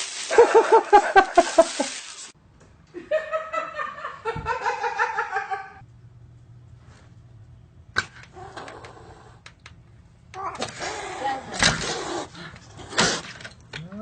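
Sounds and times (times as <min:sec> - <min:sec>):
person laughing in rhythmic bursts: 0:00.3 - 0:02.0, 0:03.0 - 0:05.8.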